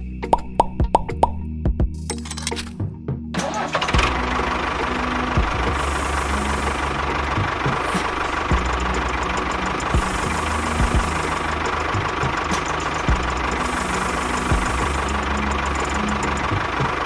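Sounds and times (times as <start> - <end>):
engine rumbling with whine: 3.4 - 17.0.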